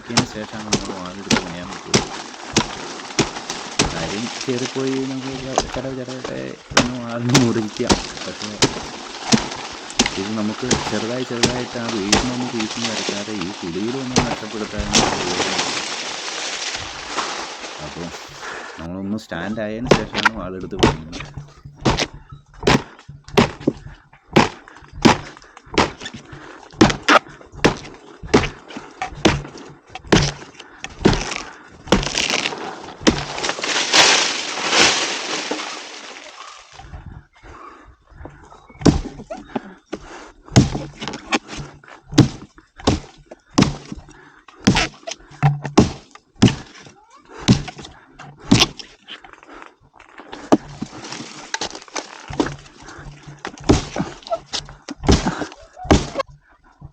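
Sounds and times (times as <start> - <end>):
strikes against tree trunk: 0.0 - 18.8, 19.9 - 36.2, 38.8 - 39.4, 40.5 - 48.9, 50.5 - 56.9
loud rustling hiss: 0.0 - 21.6, 32.4 - 36.8.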